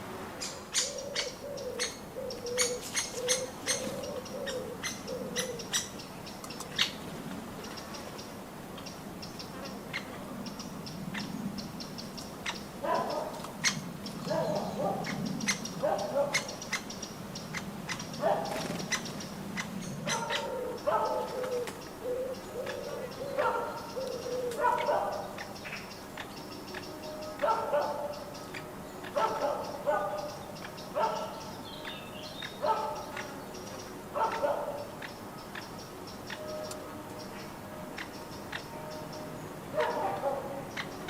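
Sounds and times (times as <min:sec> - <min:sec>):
dove cooing: 0:00.4 - 0:06.0, 0:12.4 - 0:16.8, 0:17.5 - 0:31.4
small birds chirping: 0:00.4 - 0:07.0, 0:07.6 - 0:41.0.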